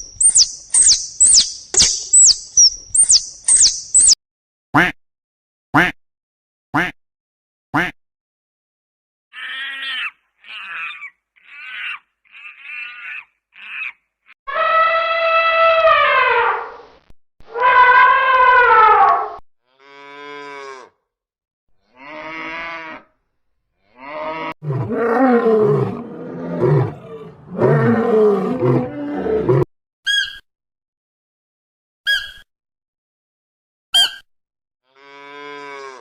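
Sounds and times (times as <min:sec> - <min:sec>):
quiet pulsing animal calls: 0:00.0 - 0:04.2
short high chirps: 0:00.2 - 0:04.2
big cat growling roars: 0:24.4 - 0:29.7.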